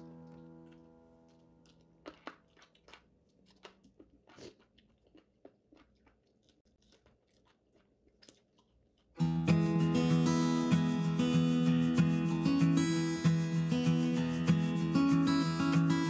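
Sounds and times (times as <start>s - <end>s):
acoustic guitar music: 0.0s - 1.9s, 9.2s - 16.0s
chewing crispy food: 0.1s - 9.2s.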